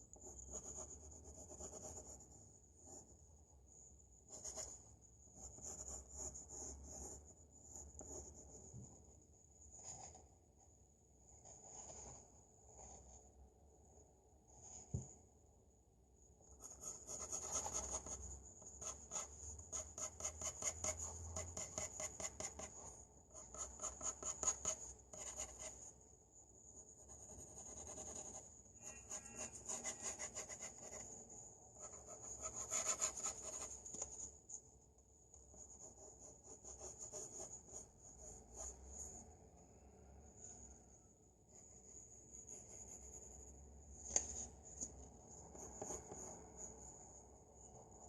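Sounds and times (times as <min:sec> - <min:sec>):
pencil shading on paper: 0:00.3 - 0:03.1, 0:05.4 - 0:08.8, 0:16.6 - 0:25.9, 0:26.8 - 0:34.0.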